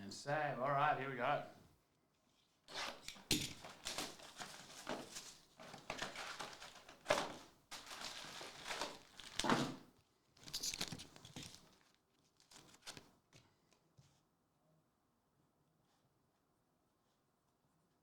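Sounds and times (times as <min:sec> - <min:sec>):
card packs tearing and crinkling: 0:02.8 - 0:09.8.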